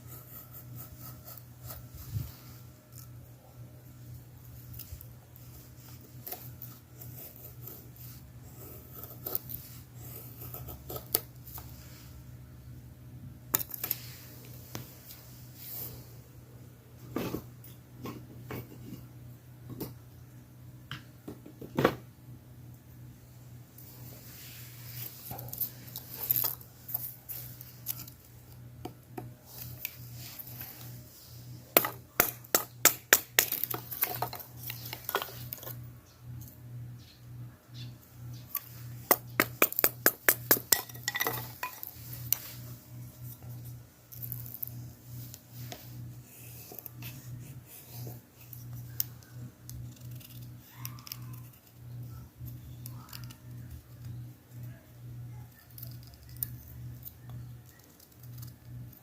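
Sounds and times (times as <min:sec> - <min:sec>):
steady low hum: 0:00.0 - 0:59.0
hard objects clinking together: 0:39.2 - 0:42.0.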